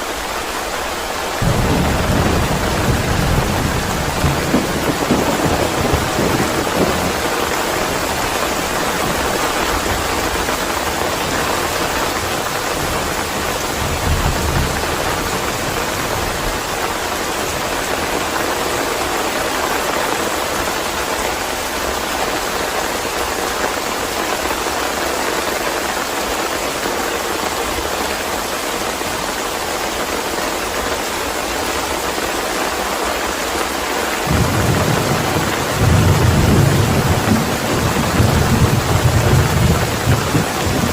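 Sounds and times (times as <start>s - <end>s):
heavy rain: 0.0s - 40.9s
thunder rumbling: 1.4s - 17.7s, 34.2s - 40.9s.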